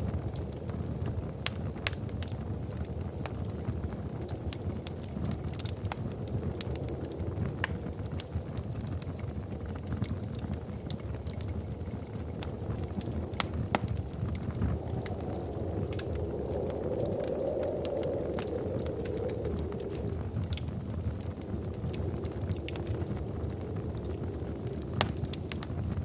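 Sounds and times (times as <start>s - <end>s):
fire popping and snapping: 0.0s - 26.0s
wood fire crackling: 0.0s - 26.0s.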